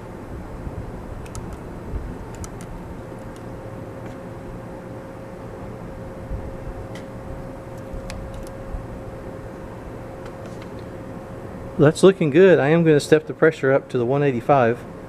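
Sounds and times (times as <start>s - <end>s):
faint steady whine: 0.0s - 15.0s
room noise hum: 0.0s - 15.0s
light clicks: 1.2s - 1.6s.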